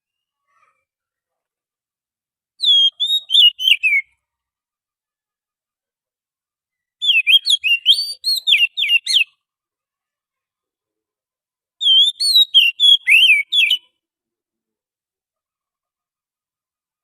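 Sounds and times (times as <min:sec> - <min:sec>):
bird singing whistled notes: 0:02.6 - 0:04.2, 0:06.7 - 0:09.3, 0:11.8 - 0:13.9.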